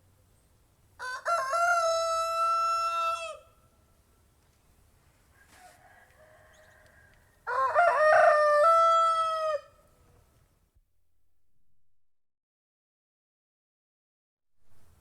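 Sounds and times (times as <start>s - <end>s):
rooster crowing: 1.0s - 3.6s, 5.3s - 9.9s.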